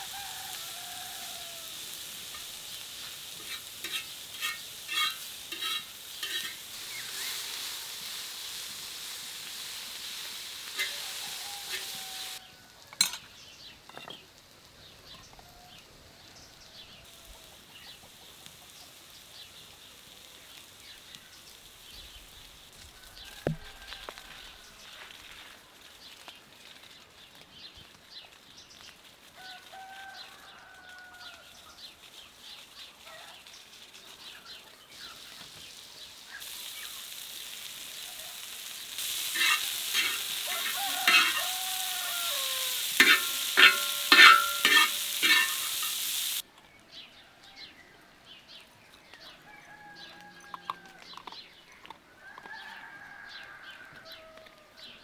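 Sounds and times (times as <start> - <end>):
chickens clucking: 0.0 - 12.4, 37.7 - 46.4
food sizzling in a pan: 0.0 - 14.6, 15.5 - 27.3, 28.2 - 46.4
utensil clinking and scraping: 1.8 - 12.4, 39.0 - 46.4.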